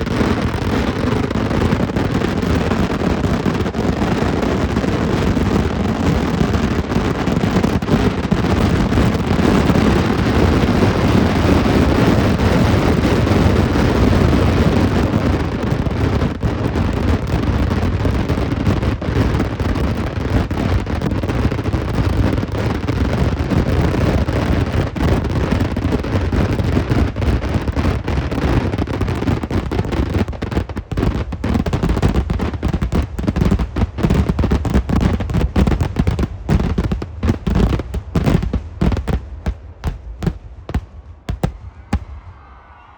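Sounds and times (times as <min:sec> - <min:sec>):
firecracker bangs: 0:35.5 - 0:42.6.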